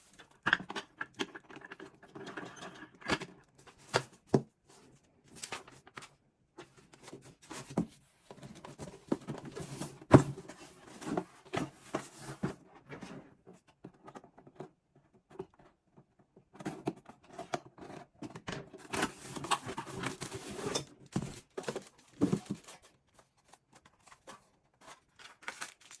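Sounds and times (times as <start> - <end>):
wrapping rustling and tearing: 18.9 - 26.0.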